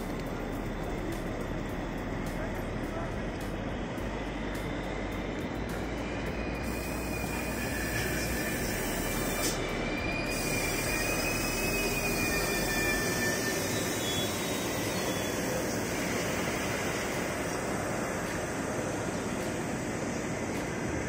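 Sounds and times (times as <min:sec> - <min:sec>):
train rumbling to a stop: 0:00.0 - 0:21.0
high brake squeal: 0:06.1 - 0:17.6.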